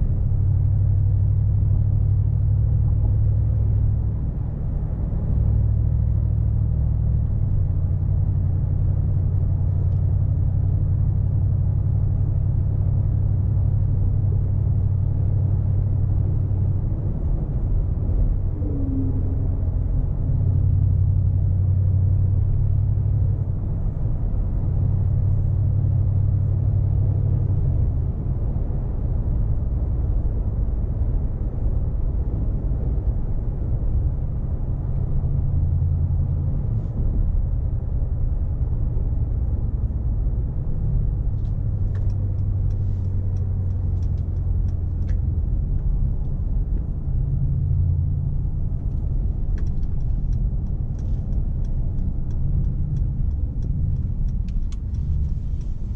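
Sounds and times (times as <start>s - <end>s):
car engine drone: 0.0s - 55.9s
road and tyre rumble: 0.0s - 55.9s
faint light ticks: 41.4s - 46.9s, 48.7s - 55.9s.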